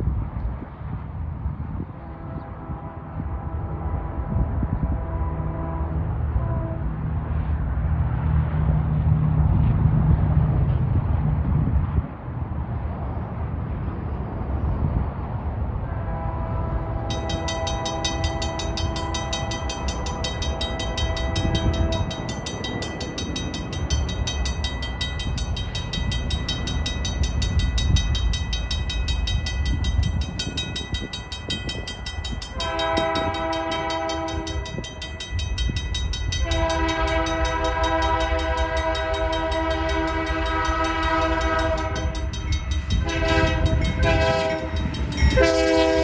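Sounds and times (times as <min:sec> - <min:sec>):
passing train rumble: 0:00.0 - 0:46.0
locomotive air horn blasts: 0:02.0 - 0:07.0, 0:15.8 - 0:22.5, 0:32.4 - 0:35.2, 0:36.4 - 0:46.0
crossing bell ringing: 0:17.1 - 0:46.0.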